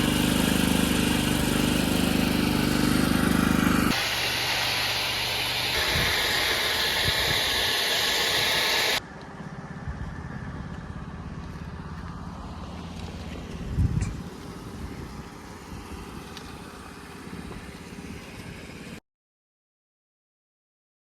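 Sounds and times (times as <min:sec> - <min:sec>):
pressure washer engine running: 0:00.0 - 0:09.0, 0:14.2 - 0:19.0
pressure washer spray hissing: 0:00.0 - 0:09.0.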